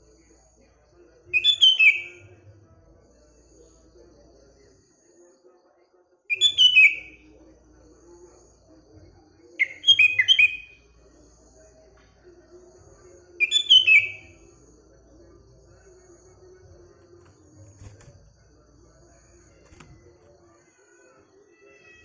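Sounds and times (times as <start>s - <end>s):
bird singing whistled notes: 1.3s - 2.2s, 6.3s - 7.2s, 9.6s - 10.8s, 13.4s - 14.4s.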